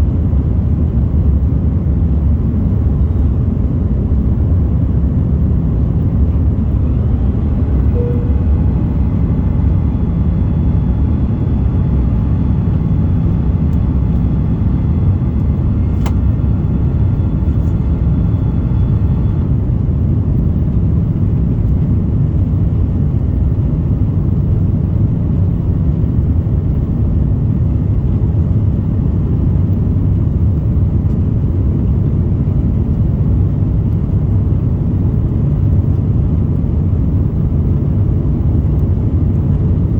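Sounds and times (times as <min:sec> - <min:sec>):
jet engine roar and rushing air: 0:00.0 - 0:39.9
faint high whine: 0:05.7 - 0:19.8.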